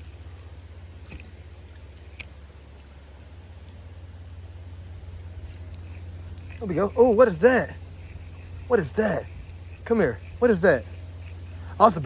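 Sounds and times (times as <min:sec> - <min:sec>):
insects chirring: 0:00.0 - 0:12.0
low steady rumble: 0:00.0 - 0:12.0
sharp click: 0:01.0 - 0:02.4.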